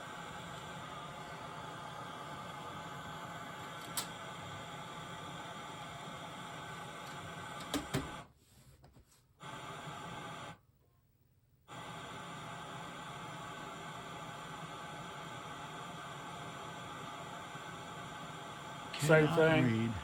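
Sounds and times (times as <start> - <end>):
tv static hiss: 11.7 - 20.0.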